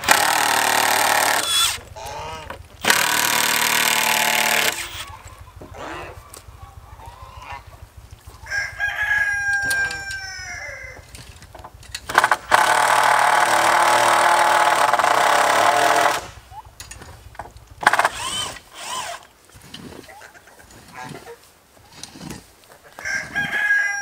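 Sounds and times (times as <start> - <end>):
loud steady noise: 0.0 - 19.3
chickens calling: 0.0 - 24.0
rooster crowing: 5.0 - 11.2, 22.9 - 24.0.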